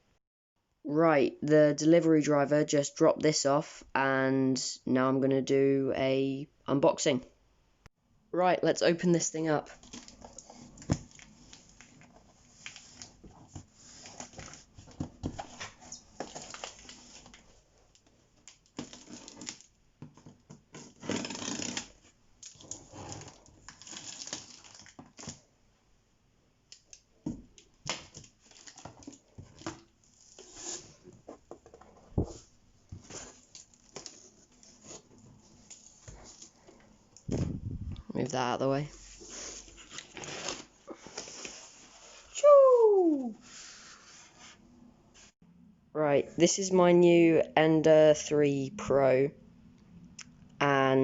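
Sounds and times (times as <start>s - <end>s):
cardboard rustling and tearing: 9.8s - 17.4s, 18.5s - 19.7s, 20.7s - 25.4s, 28.0s - 31.2s, 32.2s - 36.6s, 39.1s - 42.3s.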